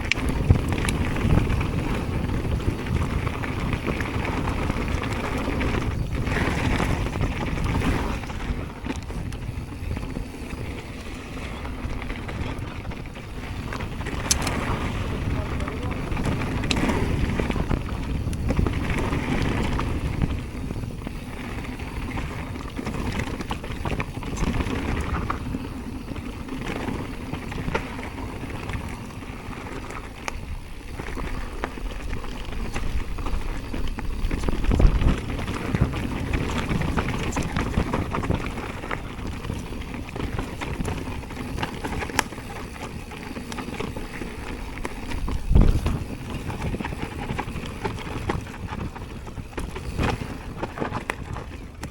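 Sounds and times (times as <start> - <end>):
bike tyres and frame rattling: 0.0 - 51.9
wind buffeting microphone: 0.0 - 51.9.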